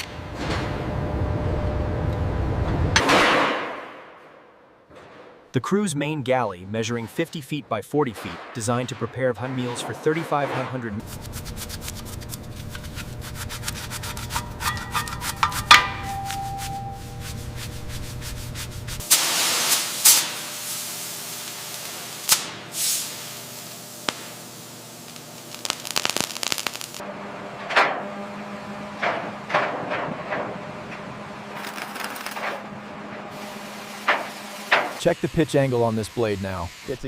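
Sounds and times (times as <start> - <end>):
low hum: 0.0 - 3.1, 10.9 - 19.0
rasping scraping on metal: 9.5 - 19.0
loud hiss: 18.6 - 27.0.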